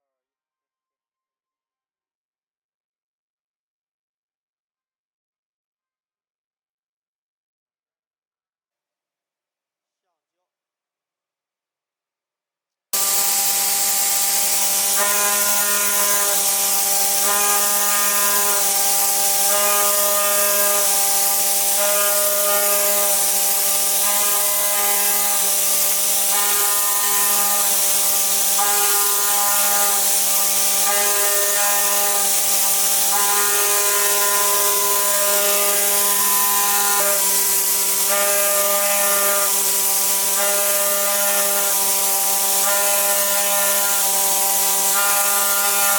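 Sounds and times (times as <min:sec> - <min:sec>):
cutting machine hum and hiss: 0:13.0 - 0:45.9
machine whining tones: 0:13.0 - 0:45.9.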